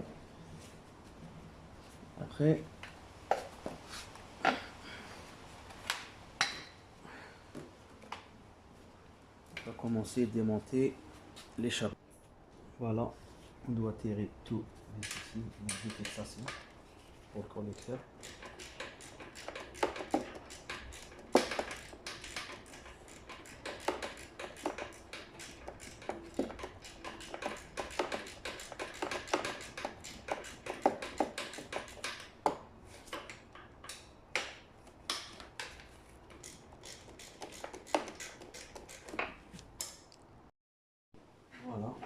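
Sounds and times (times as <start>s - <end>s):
hand tools clicking and tapping: 15.0s - 16.8s, 17.8s - 40.2s.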